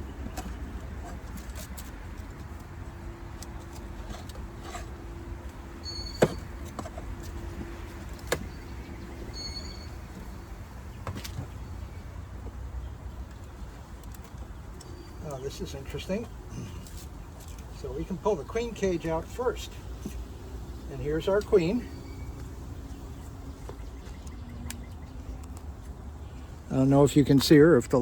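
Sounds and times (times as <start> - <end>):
bees humming: 17.8 - 24.6.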